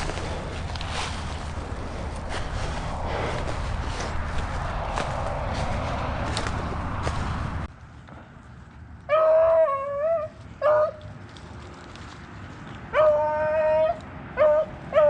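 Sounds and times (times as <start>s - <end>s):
dog barking: 10.6s - 11.0s, 13.8s - 15.0s.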